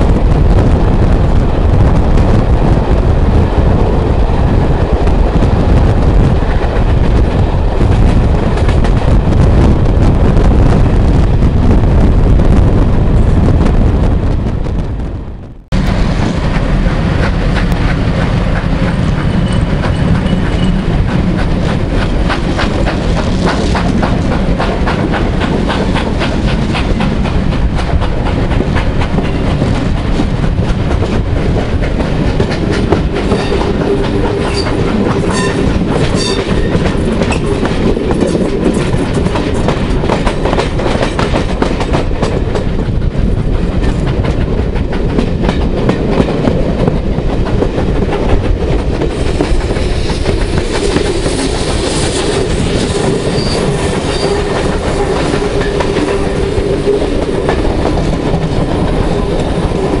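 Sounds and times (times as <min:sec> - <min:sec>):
rushing air at window: 0:00.0 - 0:36.1, 0:41.4 - 1:00.0
train wheels clattering over rail joints: 0:15.9 - 1:00.0.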